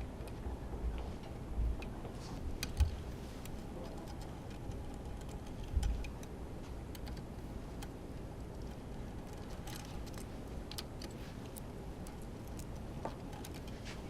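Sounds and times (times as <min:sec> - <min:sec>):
hand tools clicking and tapping: 0:08.6 - 0:14.0.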